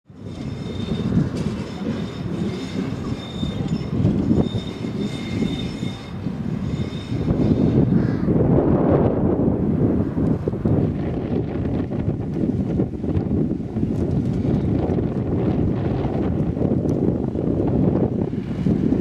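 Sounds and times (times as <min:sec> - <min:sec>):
high wheel squeal: 0:00.1 - 0:08.2
tram wheels rumbling on rails: 0:00.1 - 0:19.0.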